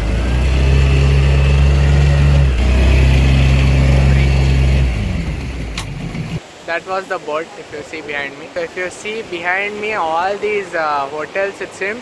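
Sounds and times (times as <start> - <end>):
motorboat engine humming: 0.0 - 6.6.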